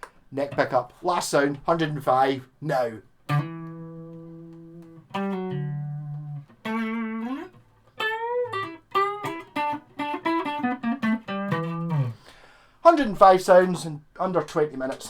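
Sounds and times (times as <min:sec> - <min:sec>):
electric guitar lick: 0:03.2 - 0:12.6.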